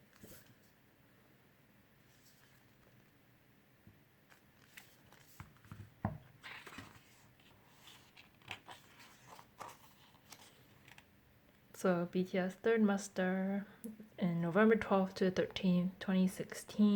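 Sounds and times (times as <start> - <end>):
book pages turning: 0.1 - 0.7, 2.1 - 3.1, 4.3 - 11.1
paper and packaging rustling: 4.3 - 11.1.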